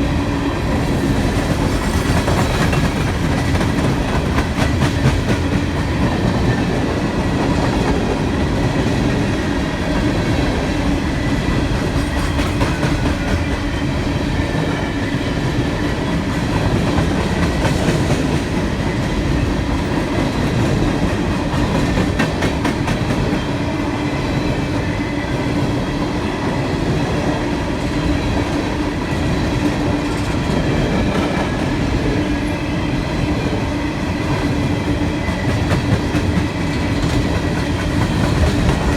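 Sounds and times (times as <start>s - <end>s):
train wheels clicking: 0.6s - 23.6s, 34.2s - 38.9s.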